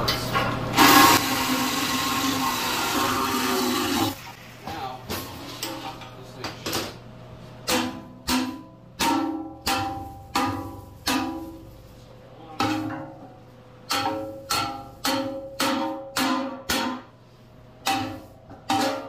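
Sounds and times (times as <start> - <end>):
hammer striking ringing steel: 13.9 - 17.1.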